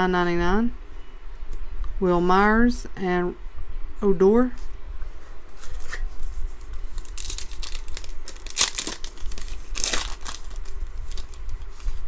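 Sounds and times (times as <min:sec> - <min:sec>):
foil wrapper tearing and crinkling: 0:06.8 - 0:12.0.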